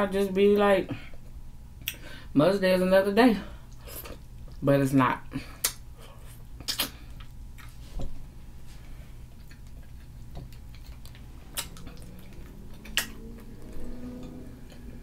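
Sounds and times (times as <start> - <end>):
mouth clicks and smacks: 5.6 - 5.8, 6.6 - 7.8, 9.4 - 13.2
quiet chewing: 5.6 - 15.0
low hum: 8.2 - 15.0.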